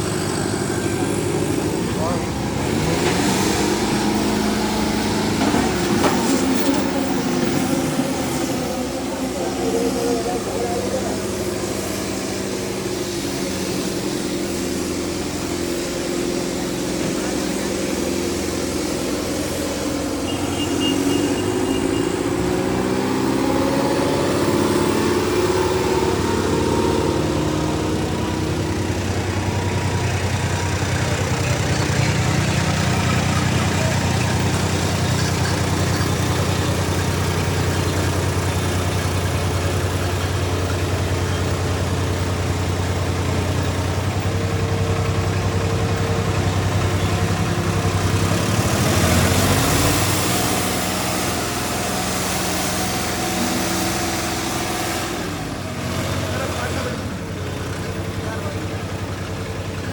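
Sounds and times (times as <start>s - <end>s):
diesel tractor engines running: 0.0s - 59.9s.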